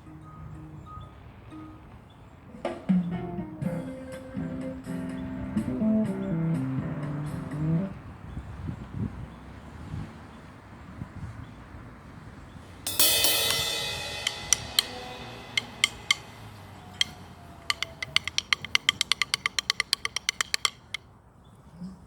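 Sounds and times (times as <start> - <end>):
cymbal struck and ringing: 12.9 - 20.8
drumstick taps: 12.9 - 21.0.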